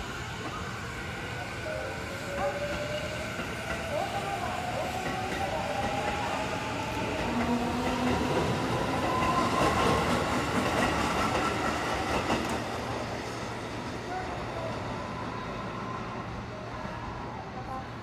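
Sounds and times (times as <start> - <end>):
electric train passing: 0.0 - 18.0.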